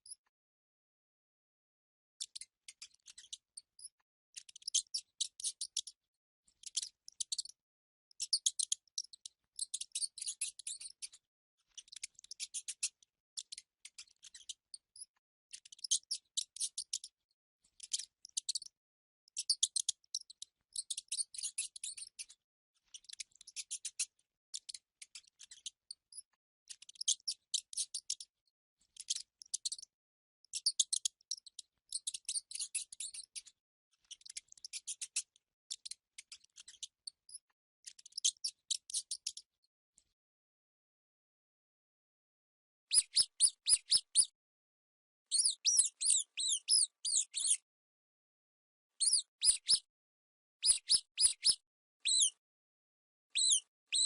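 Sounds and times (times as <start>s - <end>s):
mice squeaking: 8.2s - 11.0s, 42.9s - 44.4s, 45.3s - 47.7s, 49.0s - 49.9s, 50.6s - 52.4s, 53.3s - 54.0s.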